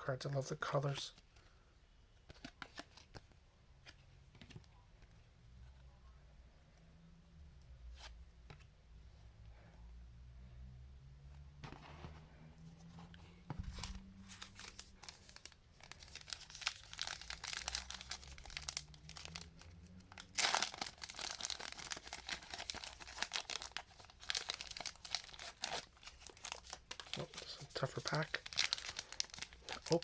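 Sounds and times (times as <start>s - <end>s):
foil wrapper crinkling and tearing: 14.3s - 30.0s.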